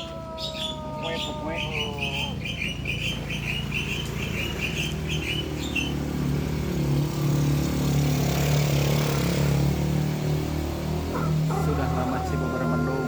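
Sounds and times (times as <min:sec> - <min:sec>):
small bird chirping: 0:00.0 - 0:06.5
vehicle engine hum: 0:00.0 - 0:13.0.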